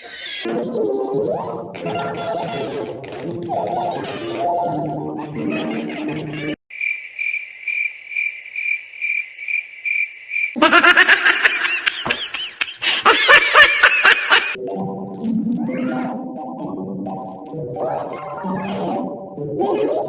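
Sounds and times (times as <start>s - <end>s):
cricket chirping: 6.7s - 10.6s
high-pitched warbling sound: 14.6s - 20.0s.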